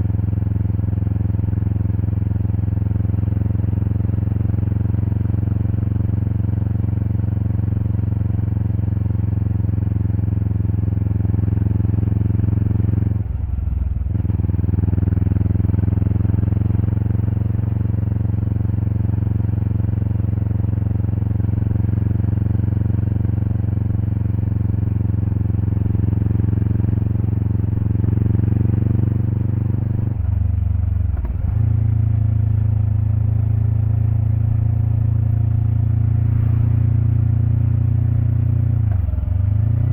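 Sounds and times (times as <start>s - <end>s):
motorcycle engine exhaust running: 0.0s - 39.9s.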